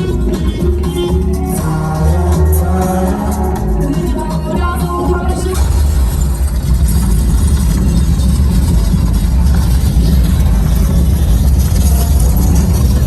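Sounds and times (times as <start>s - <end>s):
loud bass rumble: 5.4s - 13.0s.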